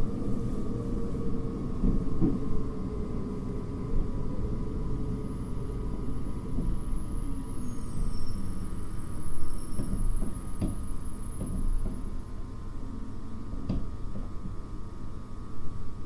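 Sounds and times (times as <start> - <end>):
train low rumble: 0.0 - 16.0
faint high whine: 3.0 - 11.3.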